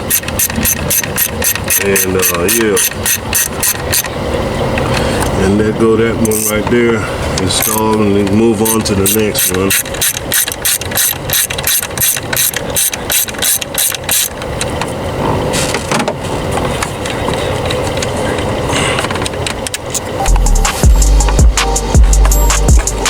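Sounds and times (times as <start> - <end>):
ratchet wrench clicking: 0.0 - 4.1, 6.3 - 6.6, 7.4 - 8.0, 8.6 - 14.4
soft irregular noise: 0.0 - 20.2.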